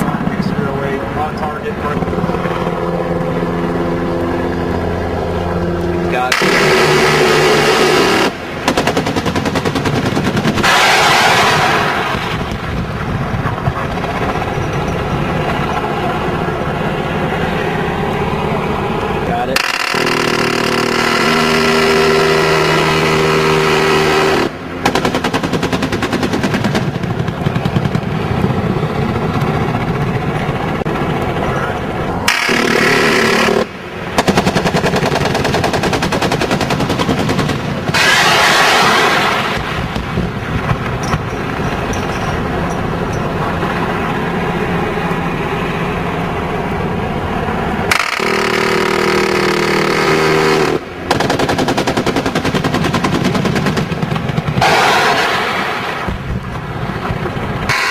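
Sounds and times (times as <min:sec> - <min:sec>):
steady whine: 0:00.0 - 0:57.9
chain gun automatic fire: 0:06.3 - 0:12.4, 0:19.6 - 0:23.1, 0:24.1 - 0:28.0, 0:32.3 - 0:39.8, 0:47.9 - 0:56.1.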